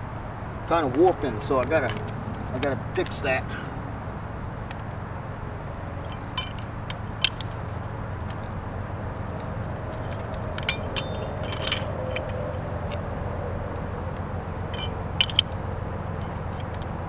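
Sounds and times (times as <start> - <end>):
steady low hum: 0.0 - 17.0
metal clinks and scrapes: 6.0 - 8.5, 9.9 - 13.0, 14.7 - 15.6, 16.2 - 16.9.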